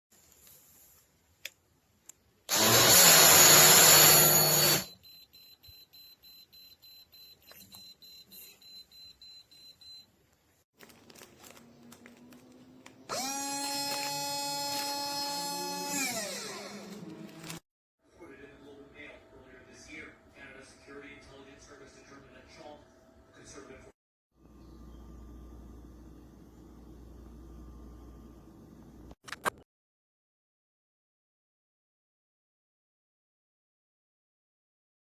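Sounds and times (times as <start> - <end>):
mini blender whirring: 2.5 - 5.0, 10.9 - 17.6, 24.4 - 29.2.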